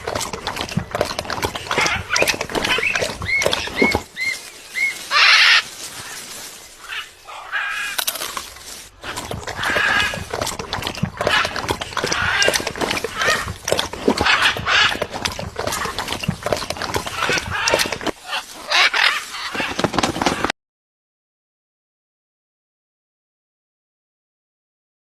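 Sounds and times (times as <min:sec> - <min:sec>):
parrots calling: 0:01.7 - 0:08.1, 0:11.2 - 0:15.2, 0:17.0 - 0:19.8
harsh parrot squawk: 0:02.8 - 0:06.2, 0:06.8 - 0:08.0, 0:17.2 - 0:19.8.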